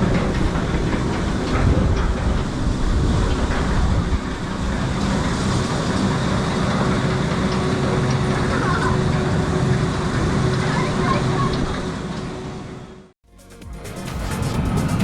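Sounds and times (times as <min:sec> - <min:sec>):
constant low hum: 0:00.0 - 0:13.1
ride machinery: 0:00.0 - 0:13.1.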